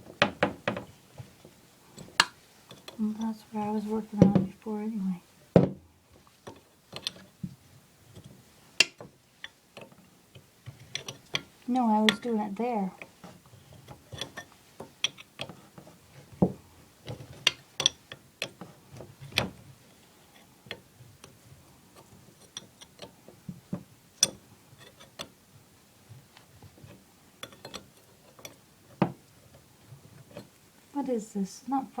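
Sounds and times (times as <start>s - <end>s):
hand tools clicking on pipe fittings: 8.2s - 12.4s, 13.8s - 15.6s, 17.1s - 19.5s.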